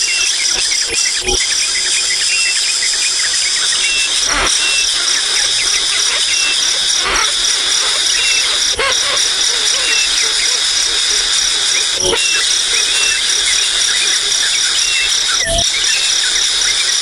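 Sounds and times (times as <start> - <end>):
high insect-like buzz: 0.0 - 17.0
young birds chirping: 1.4 - 16.9.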